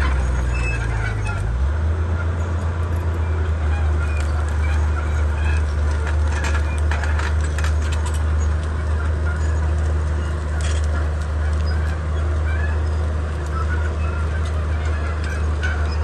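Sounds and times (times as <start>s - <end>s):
bulldozer diesel engine running: 0.0s - 16.0s
short metal clanks and cracks: 4.0s - 16.0s.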